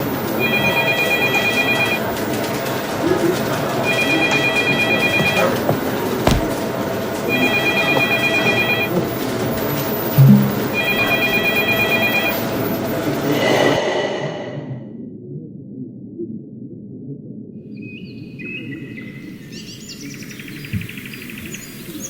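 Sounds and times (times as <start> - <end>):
busy background noise: 0.0 - 10.6.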